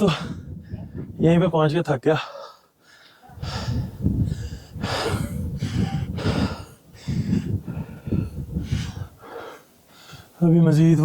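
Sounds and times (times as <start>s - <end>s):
man panting heavily: 0.0s - 0.9s, 2.2s - 10.4s.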